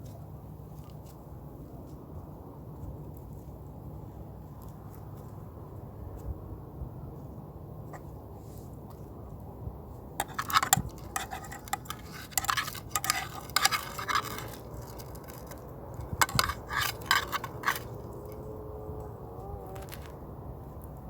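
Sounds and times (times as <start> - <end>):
quick scraping strokes: 10.2 - 18.2.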